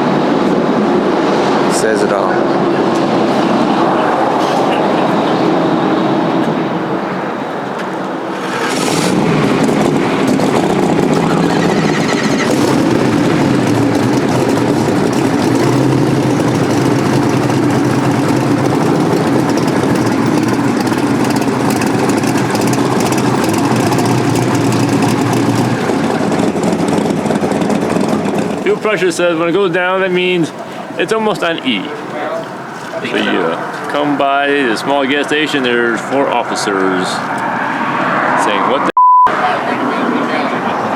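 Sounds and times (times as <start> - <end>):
road noise: 0.0 - 40.9
car engine running: 7.8 - 31.0.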